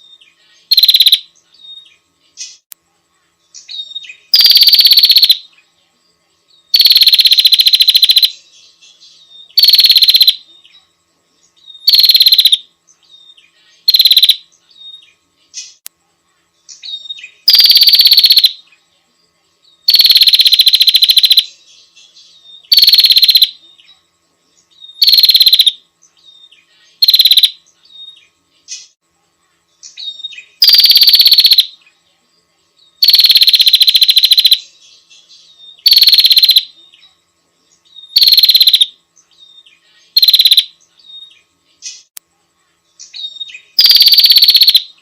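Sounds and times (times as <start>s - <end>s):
bird ticking rattle calls: 0.6s - 2.7s, 3.6s - 5.5s, 6.7s - 8.4s, 9.5s - 10.8s, 11.6s - 12.7s, 13.8s - 15.8s, 16.7s - 18.6s, 19.8s - 21.6s, 22.6s - 23.6s, 24.8s - 25.8s, 26.9s - 29.0s, 29.8s - 31.8s, 33.0s - 34.7s, 35.3s - 37.0s, 37.9s - 39.3s, 40.0s - 42.2s, 43.0s - 45.0s.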